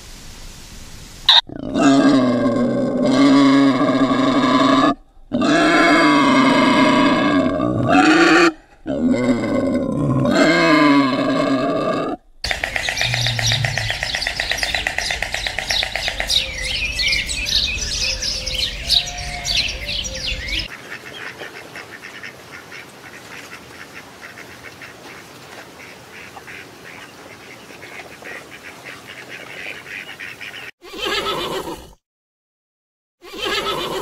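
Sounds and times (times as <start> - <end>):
dense bird chorus: 12.4 - 22.2.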